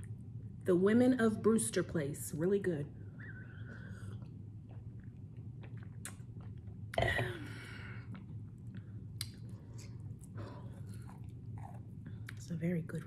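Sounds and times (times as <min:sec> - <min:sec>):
person chewing: 0:03.8 - 0:07.0, 0:08.0 - 0:12.4
mouth clicks and lip smacks: 0:04.2 - 0:07.0, 0:09.2 - 0:10.3.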